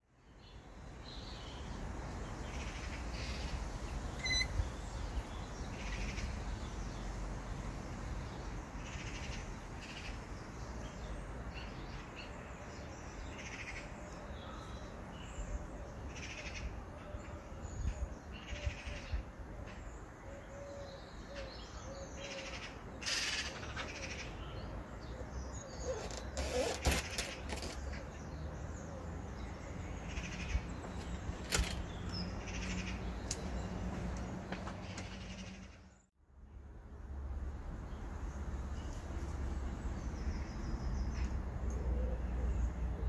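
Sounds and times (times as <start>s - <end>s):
birds calling: 1.1s - 7.1s, 8.7s - 36.1s.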